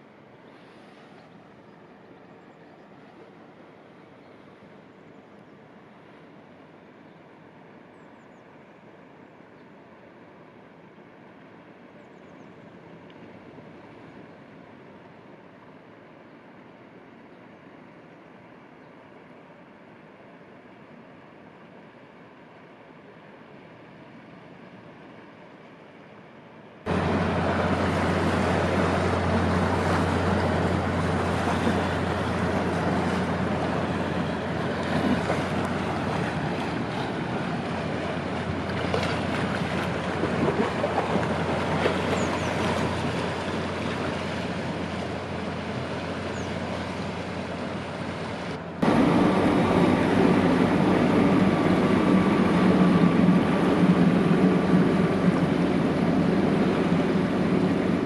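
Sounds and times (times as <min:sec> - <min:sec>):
low engine hum: 0:00.0 - 0:58.0
rushing water: 0:12.6 - 0:58.0.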